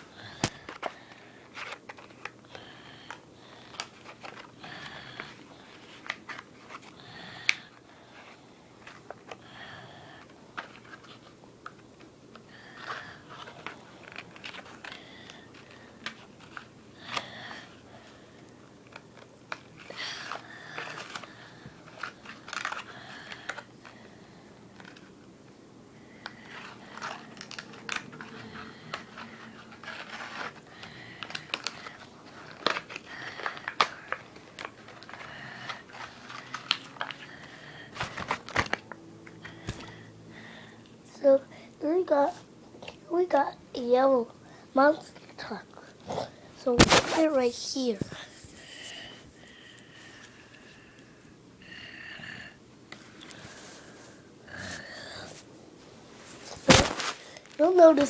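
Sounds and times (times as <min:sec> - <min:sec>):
plastic and cardboard crinkling: 0:00.4 - 0:07.0, 0:12.6 - 0:17.8, 0:18.8 - 0:24.0, 0:26.2 - 0:39.9, 0:46.6 - 0:48.5, 0:56.3 - 0:58.0
sharp packaging clicks: 0:18.8 - 0:24.0, 0:26.2 - 0:39.9.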